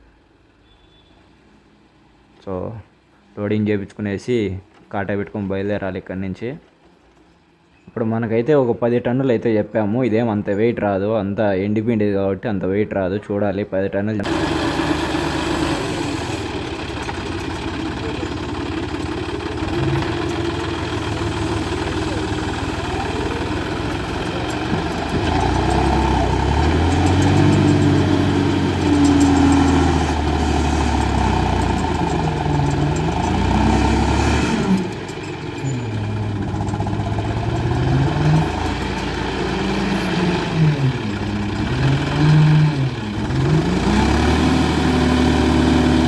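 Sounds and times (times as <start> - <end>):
tractor engine revving: 14.2 - 46.0.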